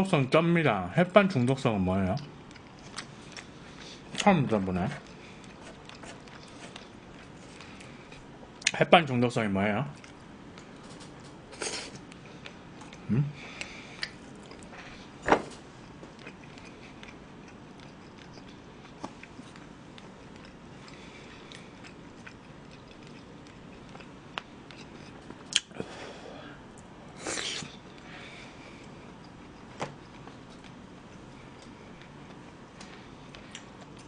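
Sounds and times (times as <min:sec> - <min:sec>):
person chewing with wet smacks: 0:02.1 - 0:04.3, 0:05.0 - 0:08.8, 0:09.9 - 0:11.3, 0:12.0 - 0:15.1, 0:15.7 - 0:25.8, 0:28.8 - 0:34.0.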